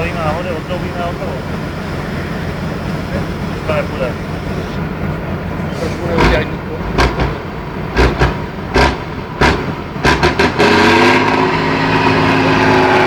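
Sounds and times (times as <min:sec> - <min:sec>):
truck engine running: 0:00.0 - 0:13.0
sharp knocks: 0:06.9 - 0:10.9.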